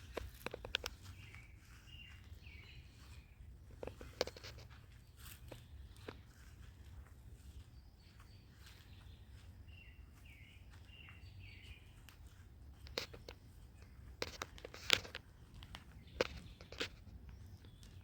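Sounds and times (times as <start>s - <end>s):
bird chirping: 0.0s - 18.0s
sharp clicks and taps: 0.1s - 1.1s.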